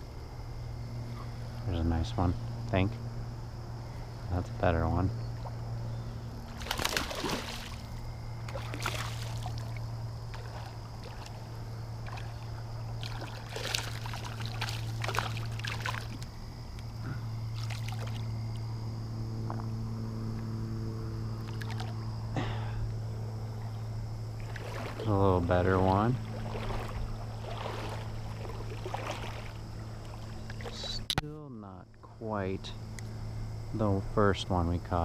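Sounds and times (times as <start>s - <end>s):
steady low hum: 0.0s - 35.0s
water splashing and sloshing: 4.6s - 18.8s, 21.4s - 22.6s, 23.4s - 31.2s.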